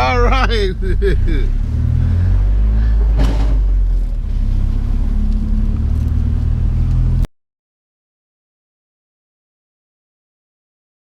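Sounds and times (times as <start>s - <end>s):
truck engine and road rumble: 0.0s - 7.3s.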